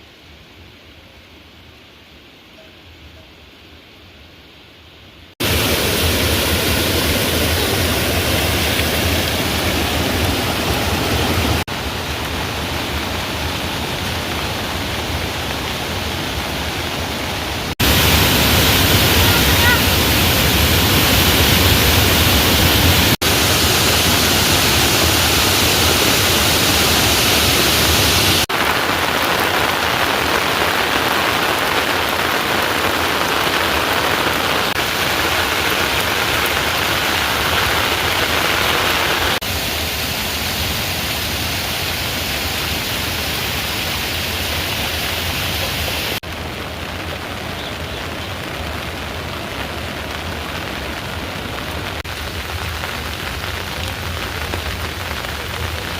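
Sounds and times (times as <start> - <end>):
heavy rain falling: 5.3 - 55.9.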